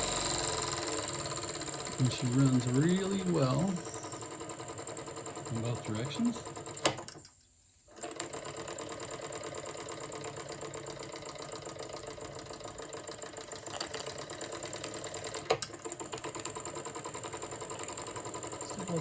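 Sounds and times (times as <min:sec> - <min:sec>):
steam engine running fast: 0:00.0 - 0:04.7.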